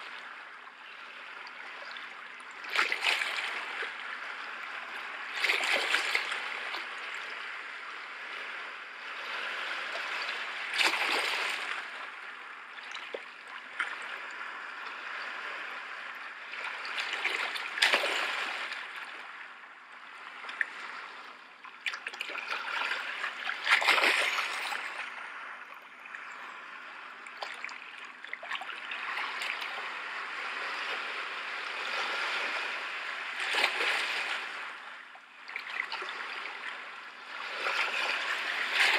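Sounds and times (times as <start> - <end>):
sea waves washing in: 2.6 - 13.0, 28.8 - 38.9.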